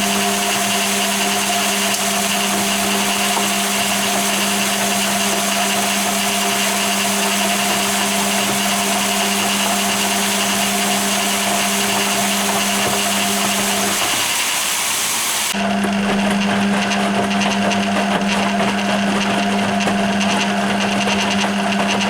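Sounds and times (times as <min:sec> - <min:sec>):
washing machine motor hum: 0:00.0 - 0:22.0.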